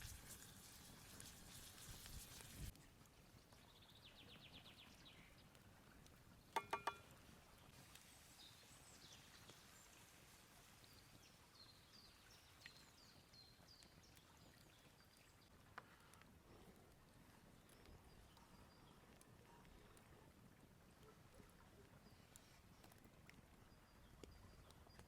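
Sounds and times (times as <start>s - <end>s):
faint birdsong: 3.5s - 25.0s
utensil clinking against cookware: 6.6s - 7.0s.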